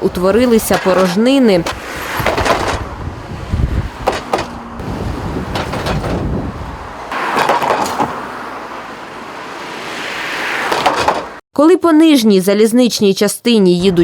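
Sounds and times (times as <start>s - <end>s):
wheels knocking on expansion joints: 0.0s - 8.4s, 10.6s - 11.4s
traffic rumble on bridge: 0.0s - 11.4s.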